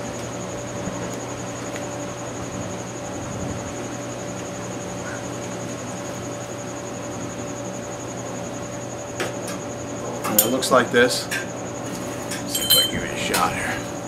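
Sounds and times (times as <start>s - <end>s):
faint pulsing high whine: 0.0s - 14.0s
constant mid-pitched tone: 10.2s - 11.4s, 12.4s - 14.0s.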